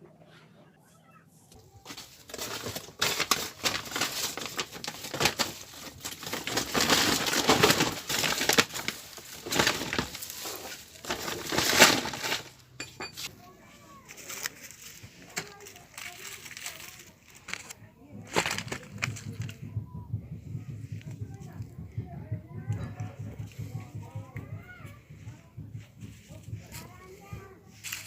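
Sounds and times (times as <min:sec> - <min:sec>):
dry firewood crackling and snapping: 0:01.8 - 0:12.8, 0:14.1 - 0:19.6, 0:27.8 - 0:28.0.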